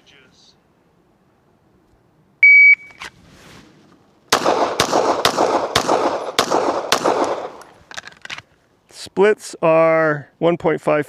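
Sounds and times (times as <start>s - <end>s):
shot timer beep: 2.4s - 3.0s
pistol shots with echo: 4.3s - 7.6s.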